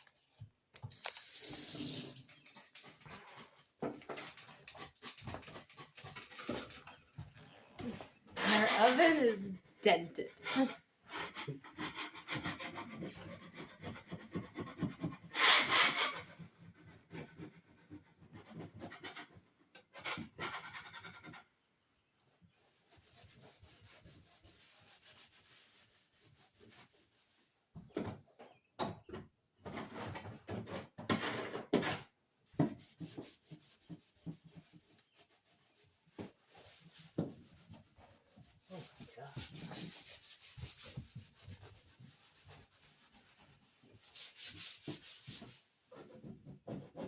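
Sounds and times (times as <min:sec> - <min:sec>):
sponge and scraper scrubbing oven: 0:08.4 - 0:09.4, 0:22.5 - 0:27.4, 0:32.5 - 0:47.0.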